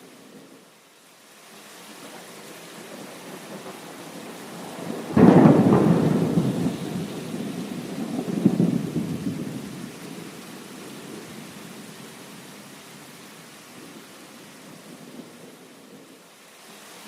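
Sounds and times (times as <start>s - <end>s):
heavy rain: 0.0s - 17.0s
thunder crack and rumble: 2.8s - 10.4s.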